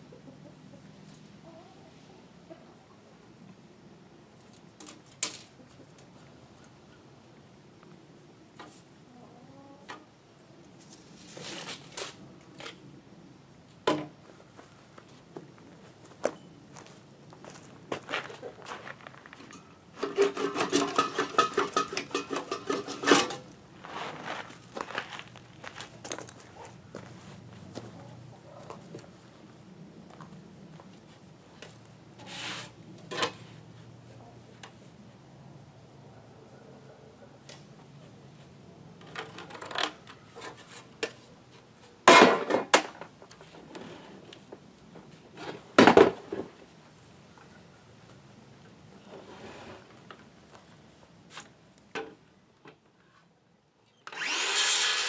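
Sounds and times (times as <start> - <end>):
wooden boards clattering: 42.1 - 43.0.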